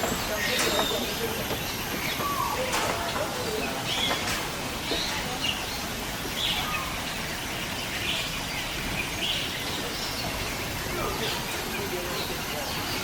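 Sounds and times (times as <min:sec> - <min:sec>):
birds chirping: 0:00.0 - 0:13.0
outdoor background noise: 0:00.0 - 0:13.0.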